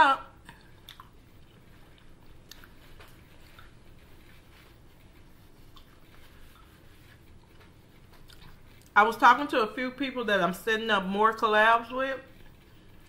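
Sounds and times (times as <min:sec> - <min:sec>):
person chewing food: 0:00.4 - 0:09.0, 0:12.3 - 0:13.0.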